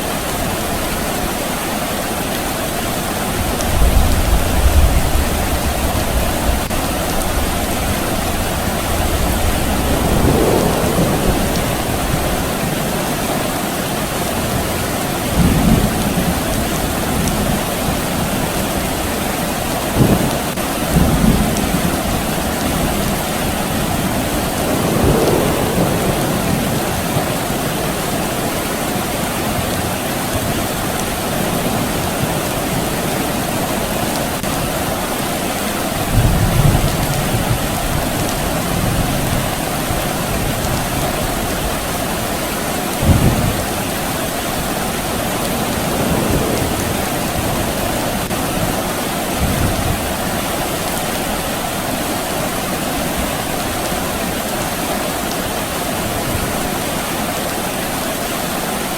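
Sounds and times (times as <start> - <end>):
soft rain falling: 0.0 - 58.9
distant thunder rumbling: 3.4 - 18.3, 20.0 - 30.0, 36.0 - 50.9.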